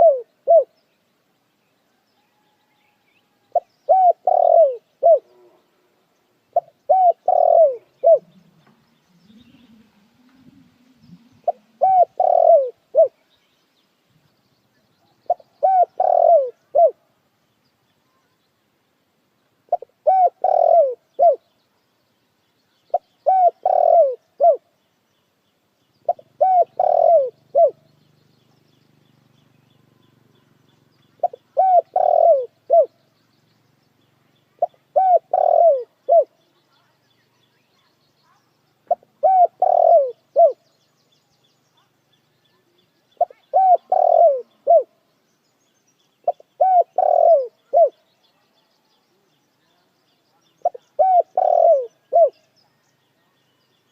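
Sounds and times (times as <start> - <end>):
dove cooing: 0.0 - 0.8, 3.5 - 5.6, 6.5 - 13.2, 15.2 - 17.0, 19.7 - 21.4, 22.9 - 24.6, 26.0 - 27.9, 31.1 - 33.0, 34.6 - 36.4, 38.9 - 40.6, 43.2 - 45.0, 46.2 - 48.0, 50.6 - 52.4.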